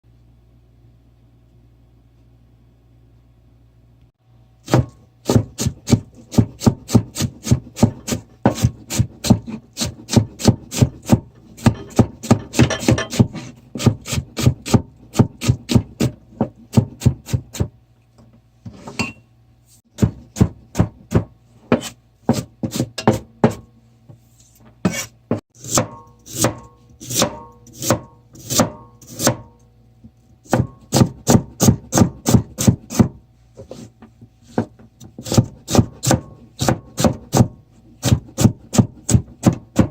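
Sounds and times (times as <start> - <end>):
knife chopping on wooden board: 4.6 - 17.8, 20.0 - 23.7, 24.8 - 29.6, 30.5 - 33.8, 34.5 - 39.9.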